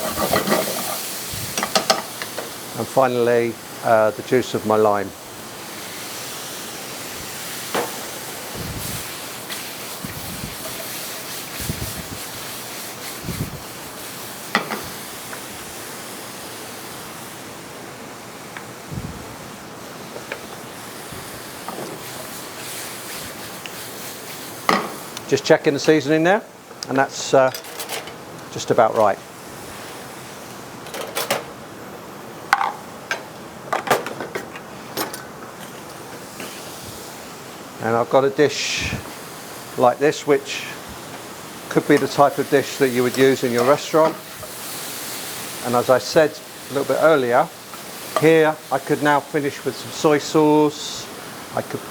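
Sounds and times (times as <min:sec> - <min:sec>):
utensils clinking against a pan: 0:00.0 - 0:02.5, 0:14.5 - 0:14.9, 0:27.5 - 0:28.2, 0:32.5 - 0:36.6, 0:41.8 - 0:44.6
mushrooms sizzling in a pan: 0:00.0 - 0:27.6, 0:28.2 - 0:30.8, 0:34.6 - 0:51.9
steady hiss: 0:00.0 - 0:51.9.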